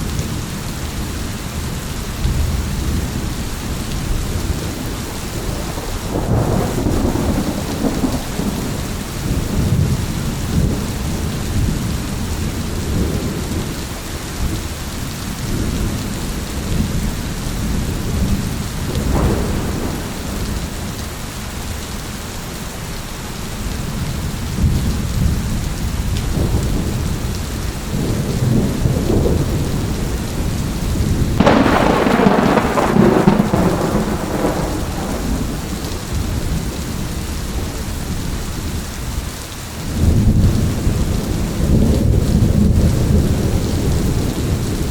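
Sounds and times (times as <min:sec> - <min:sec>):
steady rain: 0:00.0 - 0:44.9
thunder rumbling: 0:01.6 - 0:22.5, 0:23.6 - 0:39.2, 0:39.8 - 0:44.9
sharp thunderclap: 0:05.4 - 0:11.4, 0:17.8 - 0:20.9, 0:27.9 - 0:36.8.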